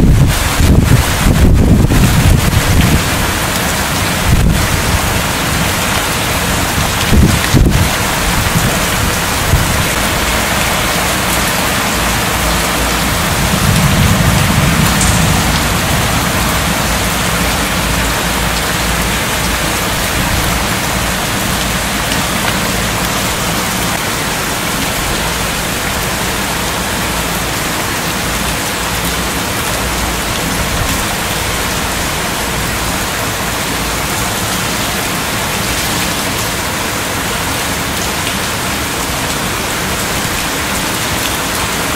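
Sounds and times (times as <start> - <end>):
low thunder rumble: 0.0 - 5.8, 7.0 - 23.9
heavy rain pouring: 0.0 - 41.9.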